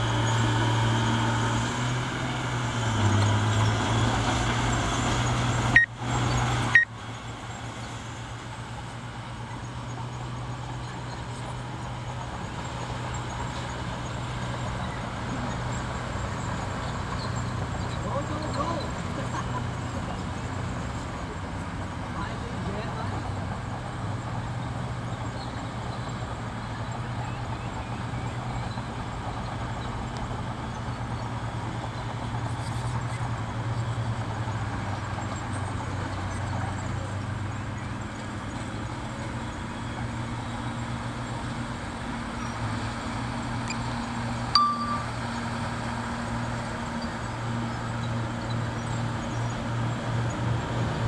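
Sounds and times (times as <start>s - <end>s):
bulldozer diesel engine droning: 0.0s - 51.0s
sharp metallic clink: 44.6s - 45.6s.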